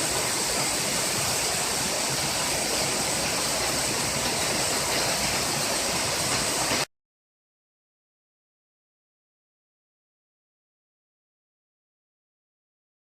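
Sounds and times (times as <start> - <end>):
waterfall rushing: 0.0 - 6.9.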